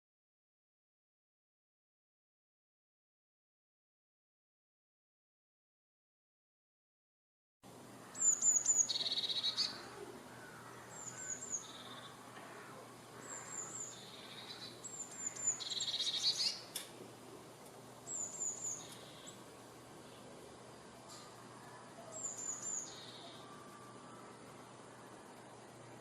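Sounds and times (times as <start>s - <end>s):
songbird singing: 7.7s - 26.0s.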